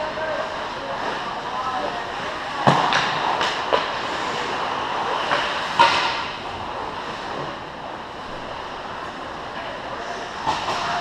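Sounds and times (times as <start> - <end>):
crowd noise: 0.0 - 11.0
hockey stick and puck hits: 2.6 - 4.0, 5.3 - 6.3.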